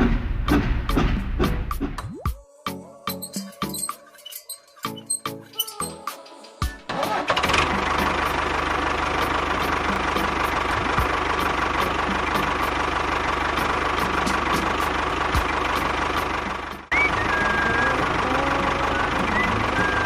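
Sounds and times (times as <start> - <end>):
small engine running: 6.9 - 20.0.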